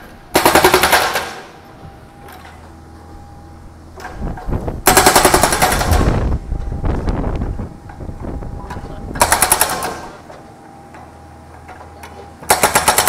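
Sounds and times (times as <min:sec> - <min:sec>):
hydraulic breaker hammering metal: 0:00.0 - 0:01.6, 0:04.0 - 0:06.7, 0:08.7 - 0:10.4, 0:11.6 - 0:13.0
excavator diesel engine running: 0:00.0 - 0:13.0.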